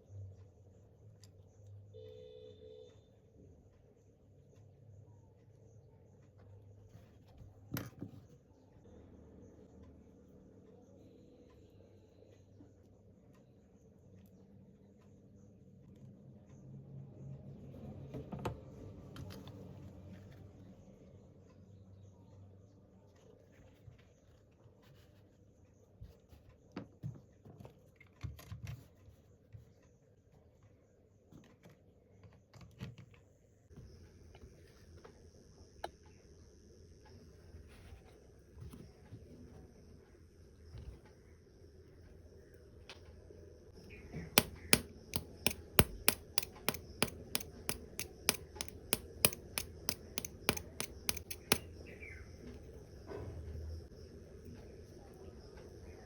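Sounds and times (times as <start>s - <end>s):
faint taps and clicks: 44.4s - 51.6s.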